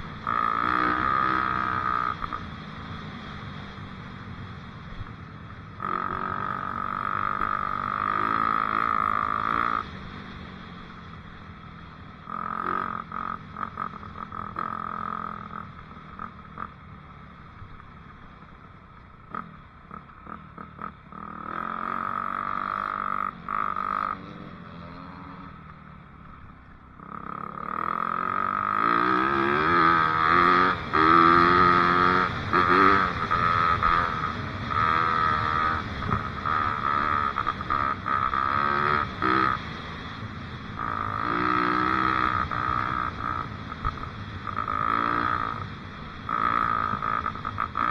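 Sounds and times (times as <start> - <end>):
dirt bike engine surging: 26.9 - 47.9.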